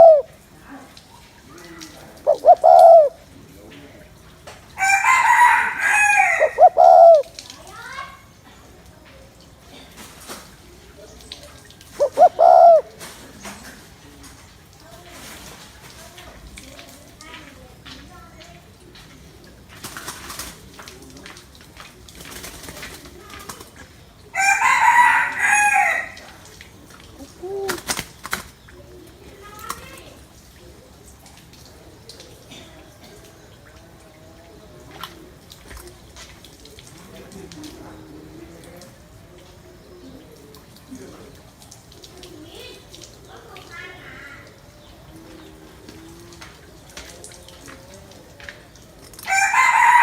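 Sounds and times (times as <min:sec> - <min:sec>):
dove cooing: 0:00.0 - 0:04.1, 0:04.8 - 0:07.4, 0:11.8 - 0:14.2, 0:22.4 - 0:31.2, 0:31.8 - 0:42.6, 0:43.2 - 0:50.0
rooster crowing: 0:04.8 - 0:07.1, 0:24.3 - 0:26.2, 0:49.3 - 0:50.0.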